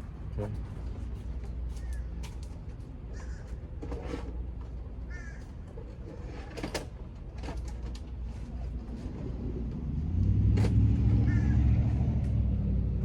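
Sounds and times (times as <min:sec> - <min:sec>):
crows cawing: 0:03.1 - 0:03.6, 0:05.1 - 0:05.4, 0:11.2 - 0:11.6.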